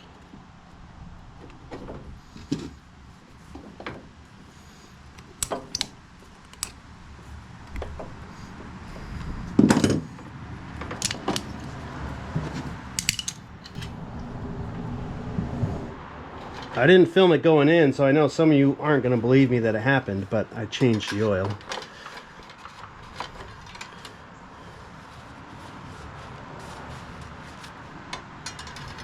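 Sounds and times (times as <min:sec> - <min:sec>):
metal tools clinking: 0:13.0 - 0:13.9, 0:28.4 - 0:29.0.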